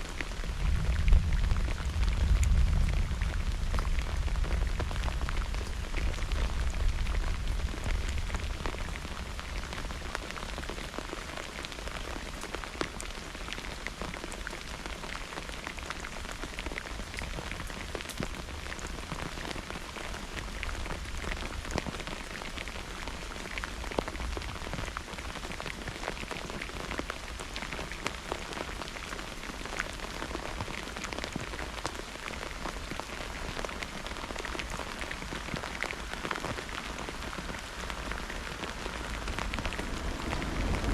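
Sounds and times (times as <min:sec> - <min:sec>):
rain pattering: 0:00.0 - 0:40.9
thunder rumble: 0:00.4 - 0:08.6, 0:38.8 - 0:40.9.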